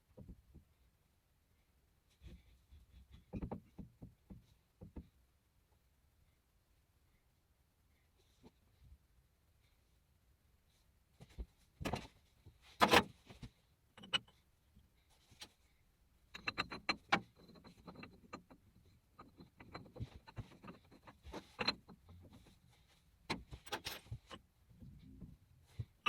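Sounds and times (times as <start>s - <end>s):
small parts and tools clicking: 16.3s - 22.6s.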